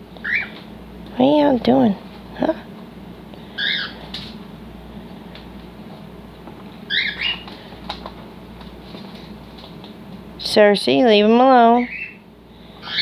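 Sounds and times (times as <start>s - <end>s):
cockatiels chirping: 0.2s - 0.5s, 3.6s - 4.0s, 6.9s - 7.5s, 11.8s - 12.2s, 12.8s - 13.0s.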